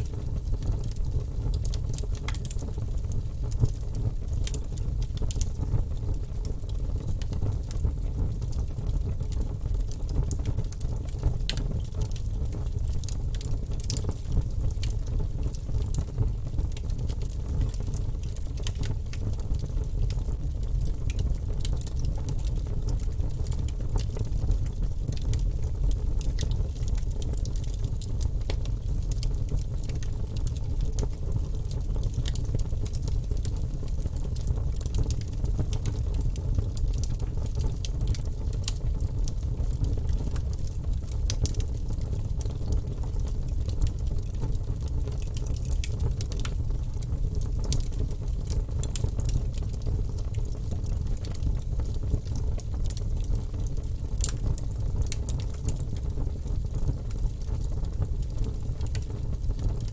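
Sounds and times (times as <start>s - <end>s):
fire burning in a fireplace: 0.0s - 59.9s
fire crackling and popping: 0.0s - 59.9s.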